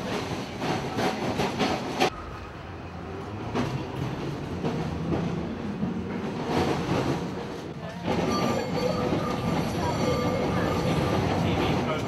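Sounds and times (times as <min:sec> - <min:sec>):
tram rumbling on rails: 0:00.0 - 0:12.0.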